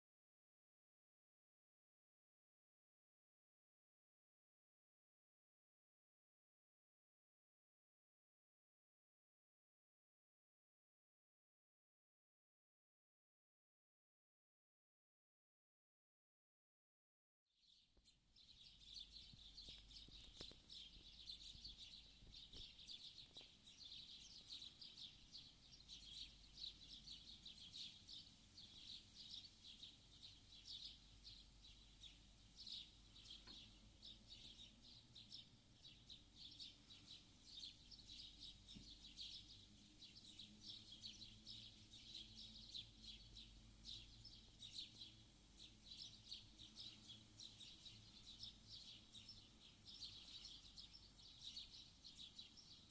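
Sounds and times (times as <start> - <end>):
small birds chirping chorus: 17.6 - 52.9.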